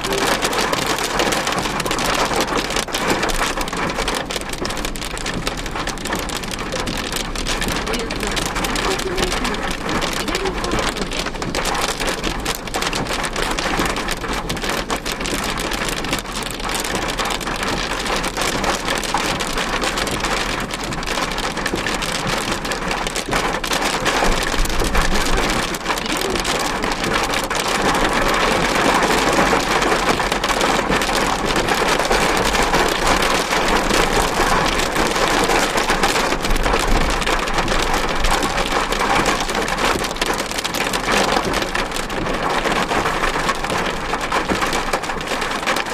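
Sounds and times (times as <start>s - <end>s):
heavy rain on car roof: 0.0s - 45.9s.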